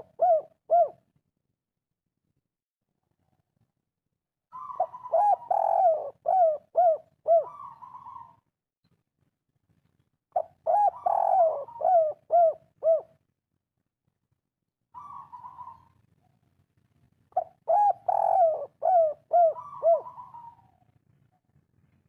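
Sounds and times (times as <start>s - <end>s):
dove cooing: 0.0s - 1.0s, 4.5s - 8.4s, 10.4s - 13.2s, 15.0s - 16.0s, 17.3s - 20.9s.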